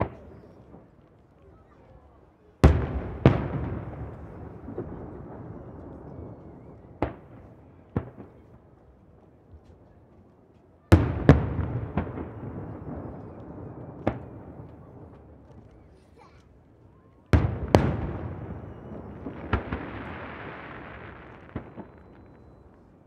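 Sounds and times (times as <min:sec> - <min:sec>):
firework shells bursting with echo: 0:17.4 - 0:23.0.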